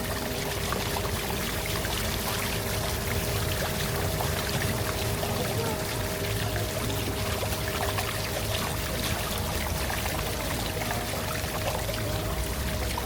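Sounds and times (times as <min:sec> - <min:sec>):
water rushing along boat hull: 0:00.0 - 0:13.0.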